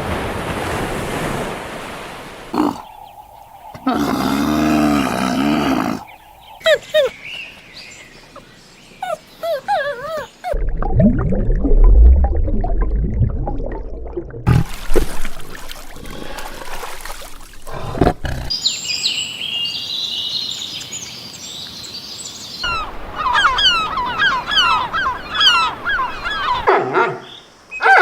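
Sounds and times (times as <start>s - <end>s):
birds chirping: 2.6s - 10.5s, 17.6s - 28.0s.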